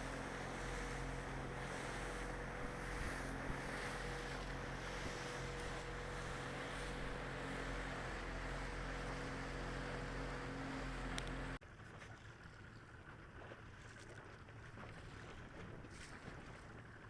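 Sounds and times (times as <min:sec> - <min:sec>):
boat motor running: 0:00.0 - 0:17.0
water noise: 0:00.0 - 0:17.0
wind: 0:00.0 - 0:17.0.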